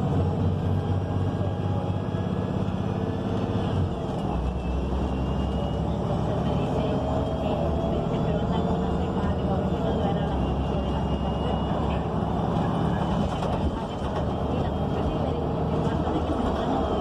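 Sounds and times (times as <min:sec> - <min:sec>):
bus engine running: 0:00.0 - 0:17.0
road noise: 0:00.0 - 0:17.0.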